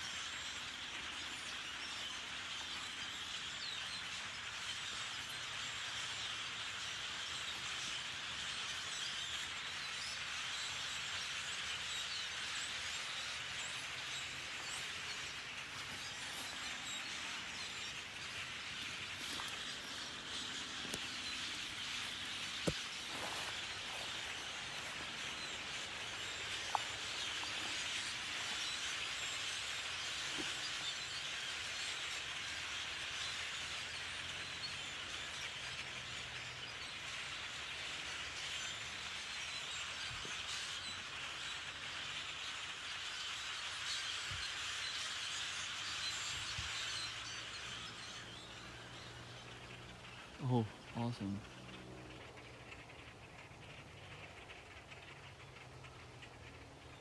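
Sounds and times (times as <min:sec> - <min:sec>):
flock of birds chattering: 0:00.0 - 0:57.0.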